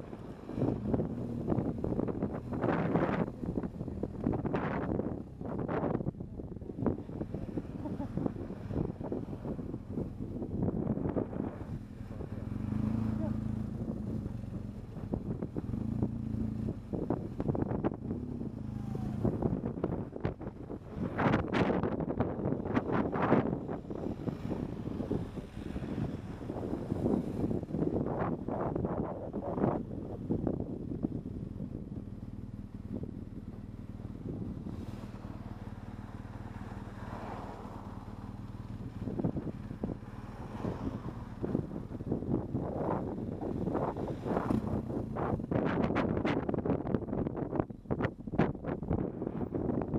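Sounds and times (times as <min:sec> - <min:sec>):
motorcycle engine running: 0:00.0 - 0:49.9
wind buffeting microphone: 0:00.0 - 0:49.9.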